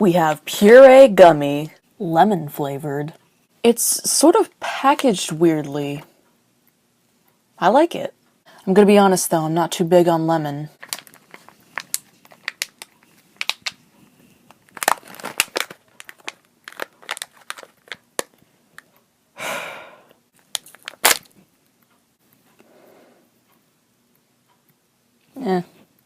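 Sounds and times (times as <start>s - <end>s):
plastic packet tearing: 10.8s - 13.8s, 14.5s - 18.4s, 20.4s - 21.3s
plastic packet crackling: 10.8s - 18.9s, 20.4s - 21.4s.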